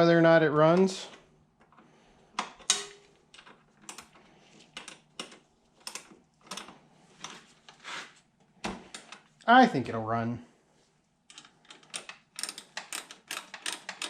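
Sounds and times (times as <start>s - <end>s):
wrench clicking on metal bolts: 11.3s - 14.0s.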